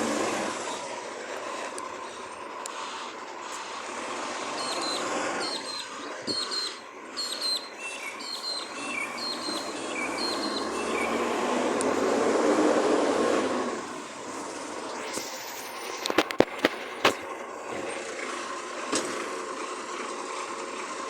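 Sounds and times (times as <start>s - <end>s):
garbage truck engine and machinery: 0.0s - 21.0s
short high chirps: 15.0s - 16.5s.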